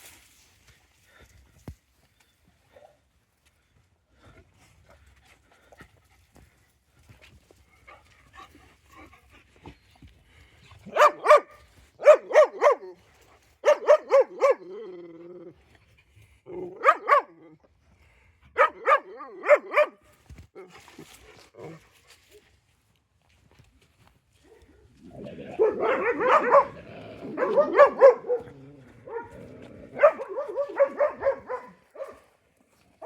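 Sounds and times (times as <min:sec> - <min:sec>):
dog barking: 0:10.8 - 0:13.0, 0:13.6 - 0:14.8, 0:16.7 - 0:17.4, 0:18.5 - 0:20.0, 0:25.5 - 0:32.3.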